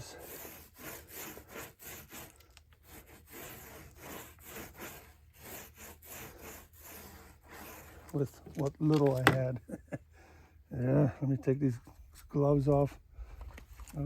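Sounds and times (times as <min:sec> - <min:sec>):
rhythmic scraping strokes: 0:00.0 - 0:09.5.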